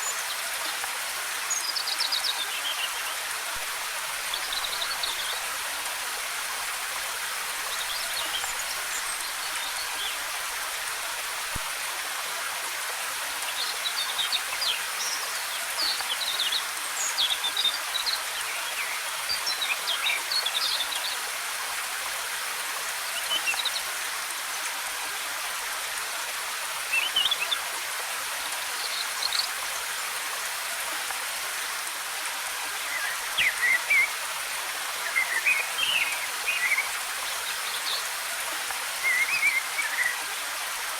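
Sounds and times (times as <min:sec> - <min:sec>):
waterfall rushing: 0:31.3 - 0:40.9.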